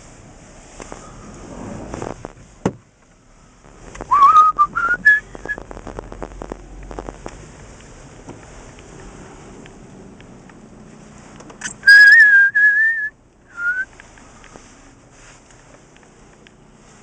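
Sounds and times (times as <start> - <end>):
person whistling: 4.1 - 5.6, 11.6 - 13.9.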